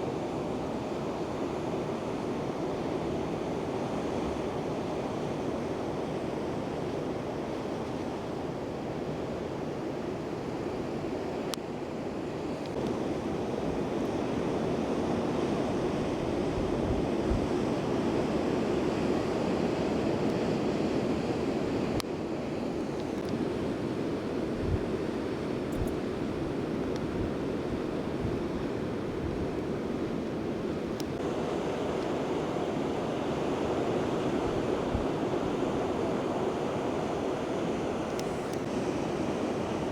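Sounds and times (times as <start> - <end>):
ocean surf rushing: 0.0 - 39.9
wind buffeting microphone: 25.7 - 30.0.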